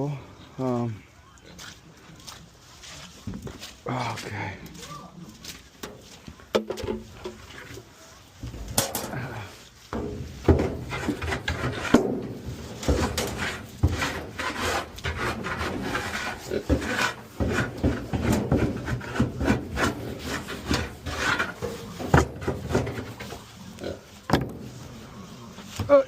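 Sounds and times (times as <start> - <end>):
straw rustling and scraping: 1.5 - 26.0
wooden knocks and thumps: 5.9 - 7.4, 9.9 - 23.5, 24.3 - 24.8.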